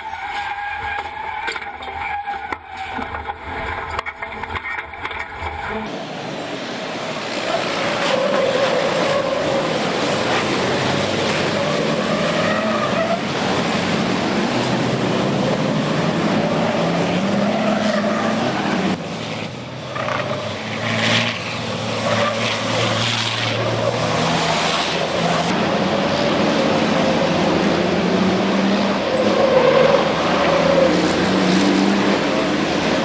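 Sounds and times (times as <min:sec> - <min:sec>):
racing truck engines: 0:00.0 - 0:33.0.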